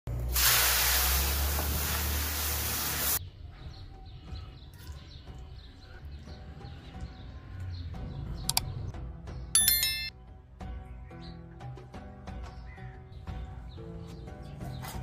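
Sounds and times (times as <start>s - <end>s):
vegetables sizzling in a wok: 0.1s - 3.2s.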